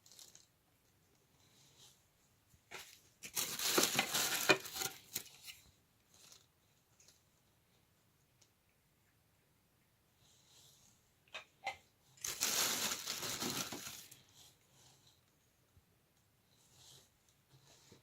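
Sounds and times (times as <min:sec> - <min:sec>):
packaging rustling and tearing: 0:03.2 - 0:05.4, 0:12.2 - 0:14.2.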